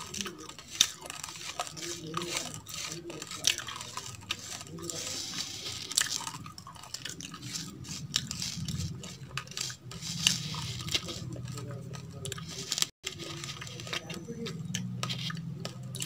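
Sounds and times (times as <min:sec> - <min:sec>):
fingers picking grains from plastic bowl: 0:00.0 - 0:06.6
chewing crunchy raw rice: 0:00.0 - 0:16.0.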